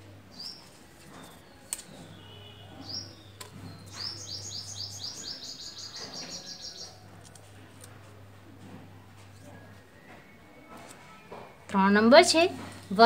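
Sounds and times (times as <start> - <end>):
small bird chirping: 0.3 - 7.0.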